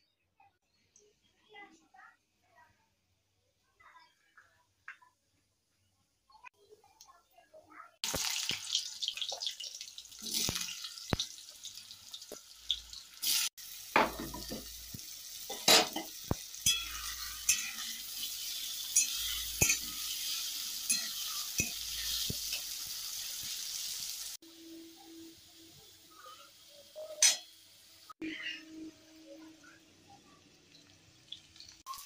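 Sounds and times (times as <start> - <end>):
potatoes sizzling in oil: 8.0 - 28.5, 29.2 - 32.0.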